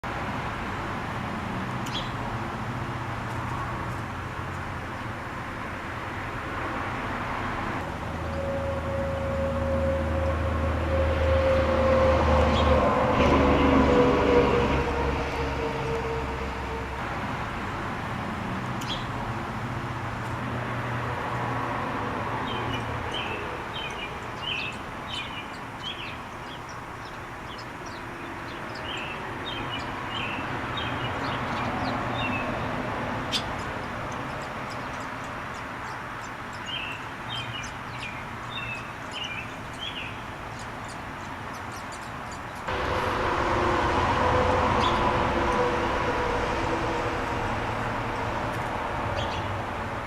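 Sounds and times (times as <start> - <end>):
small birds chirping: 1.7 - 2.2, 18.8 - 19.2, 22.5 - 42.7.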